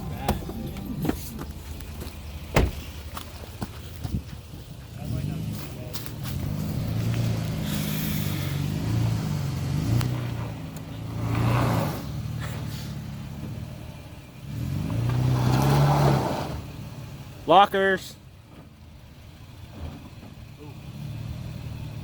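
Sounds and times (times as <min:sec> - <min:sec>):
pickup engine revving: 0:00.0 - 0:22.0.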